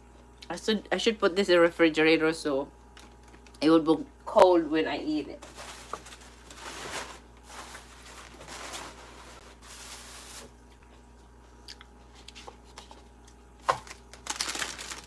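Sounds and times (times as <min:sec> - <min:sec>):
person chewing grapes: 0:10.6 - 0:14.2.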